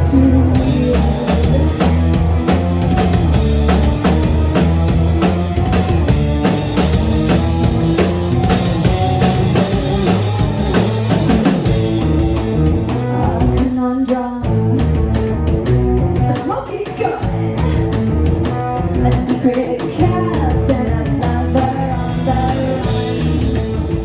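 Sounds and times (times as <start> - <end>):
rock band playing: 0.0 - 24.0.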